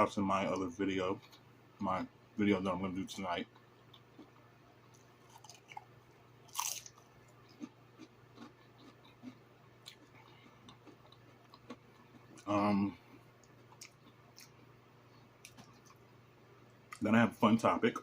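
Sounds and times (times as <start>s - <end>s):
low steady hum: 0.0s - 18.0s
person chewing food: 3.5s - 16.1s.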